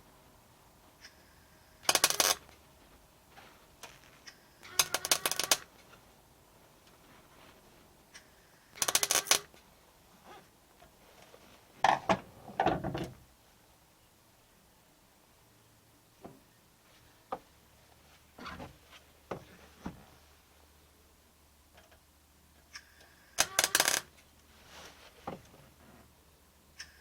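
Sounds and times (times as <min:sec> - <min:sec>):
welder crackling bursts: 0:01.8 - 0:02.4, 0:04.7 - 0:05.7, 0:08.8 - 0:09.5.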